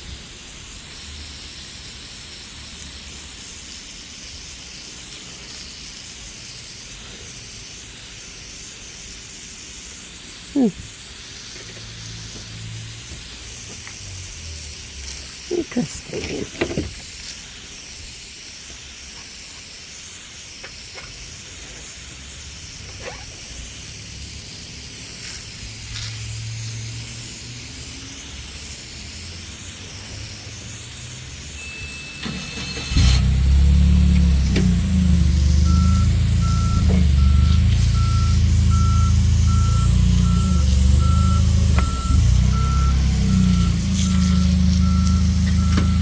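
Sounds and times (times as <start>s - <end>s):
steady hiss: 0.0s - 46.0s
low engine hum: 32.2s - 46.0s.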